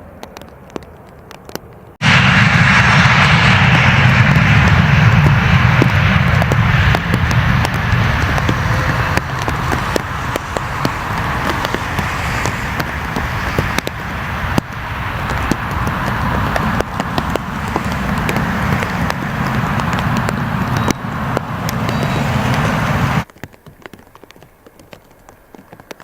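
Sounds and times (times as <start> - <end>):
aircraft engine rumble: 1.7 - 23.3
raindrops tapping near microphone: 5.2 - 26.0
steady rain hiss: 5.5 - 26.0.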